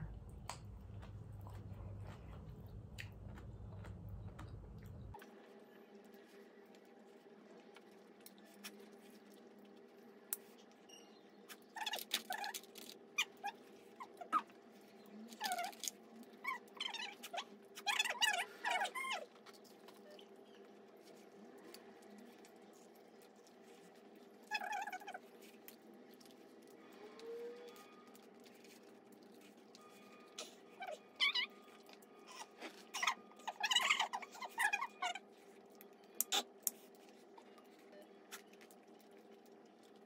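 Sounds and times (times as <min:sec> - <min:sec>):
wet squeaky chewing: 0:10.5 - 0:40.0.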